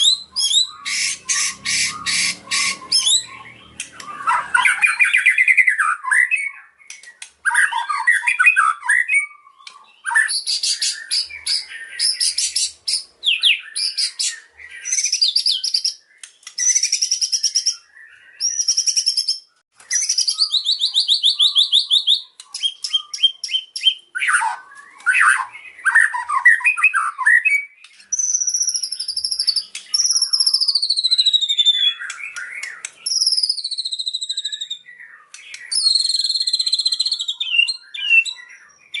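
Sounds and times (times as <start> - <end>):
shama singing trills and whistles: 0.0 - 39.0.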